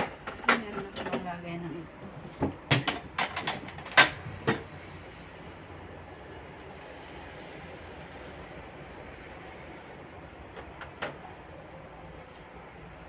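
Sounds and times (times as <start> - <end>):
containers knocking and clattering: 0.0 - 4.7
low background hum: 0.0 - 13.0.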